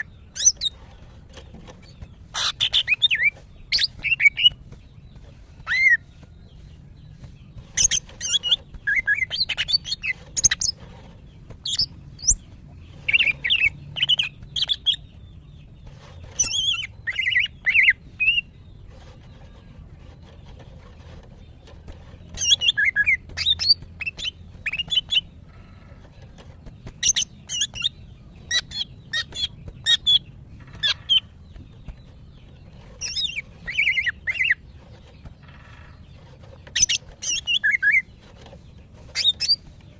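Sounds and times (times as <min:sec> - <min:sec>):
bird chirping and whistling: 0:02.3 - 0:04.6, 0:05.6 - 0:06.0, 0:07.8 - 0:10.8, 0:16.3 - 0:18.5, 0:22.3 - 0:25.2, 0:27.0 - 0:30.2, 0:33.0 - 0:34.6, 0:36.7 - 0:38.1.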